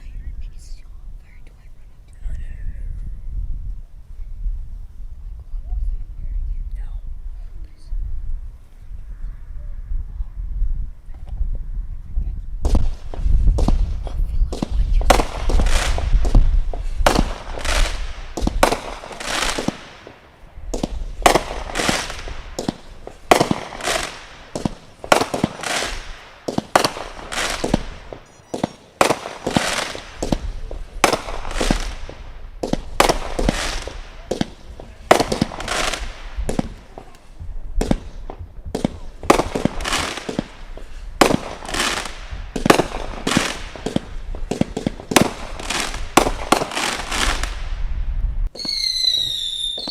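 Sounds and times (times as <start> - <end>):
firework bangs with crackling: 12.6 - 49.9.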